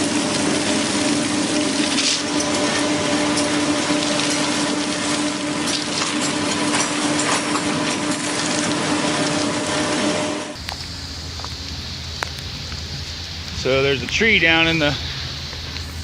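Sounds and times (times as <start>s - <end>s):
train running on track: 0.0s - 16.0s
faint crackles: 10.6s - 16.0s.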